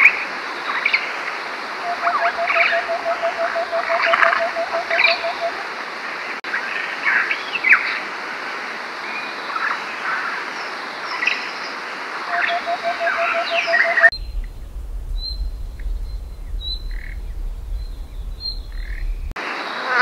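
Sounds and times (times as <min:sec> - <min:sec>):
fast series of low notes: 0:14.1 - 0:19.4
steady hiss: 0:14.1 - 0:19.4.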